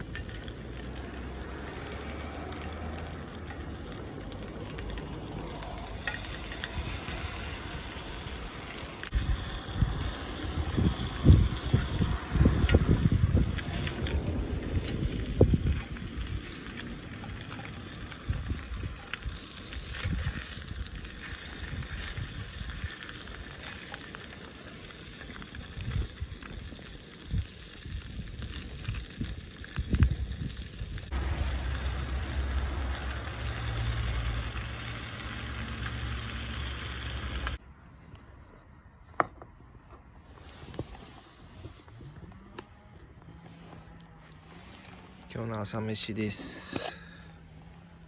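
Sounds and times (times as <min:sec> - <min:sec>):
food sizzling in a pan: 0:00.0 - 0:37.6.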